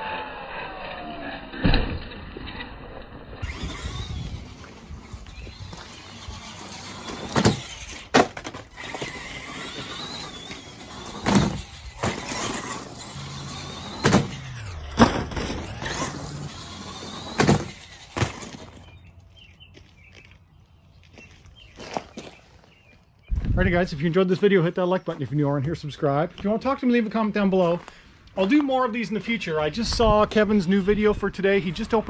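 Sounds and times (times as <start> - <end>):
sharp knocks and thumps: 3.4 - 19.0
electric motor whining: 3.4 - 19.5
wheels grinding on gravel: 3.4 - 24.2.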